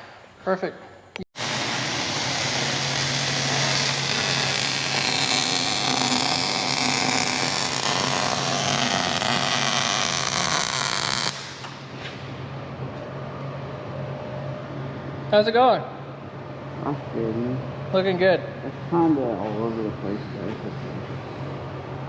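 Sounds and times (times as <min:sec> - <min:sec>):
constant low hum: 0:00.0 - 0:22.0
power tool working metal: 0:01.4 - 0:11.7.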